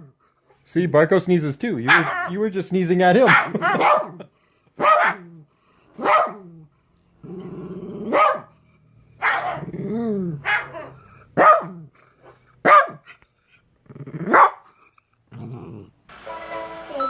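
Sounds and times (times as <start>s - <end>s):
dog barking: 1.9s - 2.4s, 3.3s - 5.3s, 6.0s - 6.5s, 8.0s - 8.6s, 9.2s - 9.7s, 10.4s - 11.9s, 12.6s - 13.1s, 14.3s - 14.7s
dog growling: 5.0s - 12.5s, 13.7s - 16.0s.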